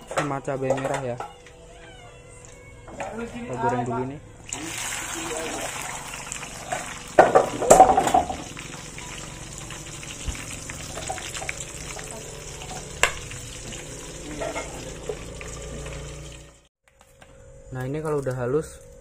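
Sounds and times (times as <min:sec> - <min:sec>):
food sizzling in hot oil: 0:04.5 - 0:16.7.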